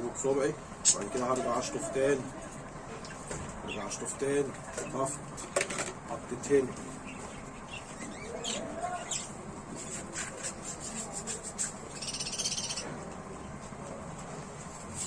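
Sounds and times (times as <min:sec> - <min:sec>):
budgerigars chirping: 0:07.0 - 0:09.3, 0:11.9 - 0:12.8.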